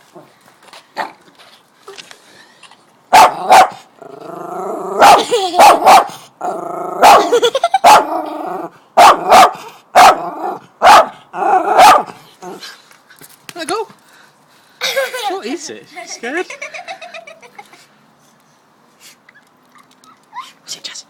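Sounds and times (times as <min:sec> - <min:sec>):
dog barking: 0:03.1 - 0:03.9, 0:05.0 - 0:06.1, 0:07.0 - 0:07.3, 0:07.9 - 0:08.1, 0:09.0 - 0:10.2, 0:10.8 - 0:12.2
dog growling: 0:04.0 - 0:05.2, 0:06.4 - 0:07.3.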